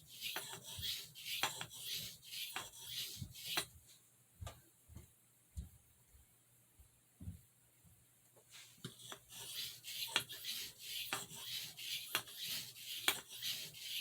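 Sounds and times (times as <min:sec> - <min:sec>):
blade rasping on sharpening stone: 0:00.1 - 0:03.6, 0:09.1 - 0:14.0.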